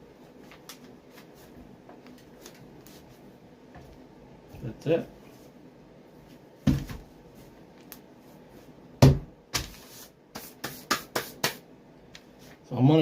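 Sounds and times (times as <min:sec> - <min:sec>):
objects knocking on work surface: 0:06.6 - 0:07.0.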